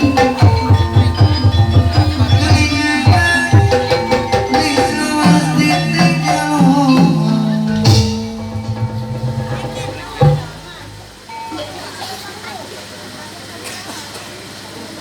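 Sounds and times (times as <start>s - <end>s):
hand drum strokes: 0.0s - 11.8s
metal percussion melody: 0.0s - 12.2s.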